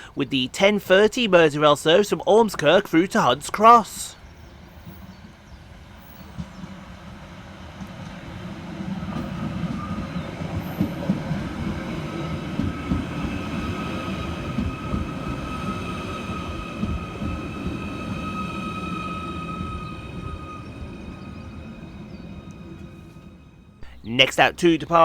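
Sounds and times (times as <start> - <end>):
electric train whine: 0.0 - 25.0
train wheels rumbling on rails: 0.0 - 25.0.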